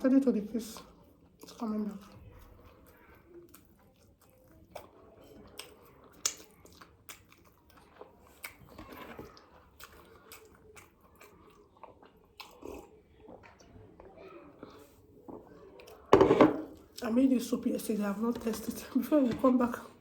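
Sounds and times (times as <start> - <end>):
chewing with mouth smacks: 0.6 - 16.1.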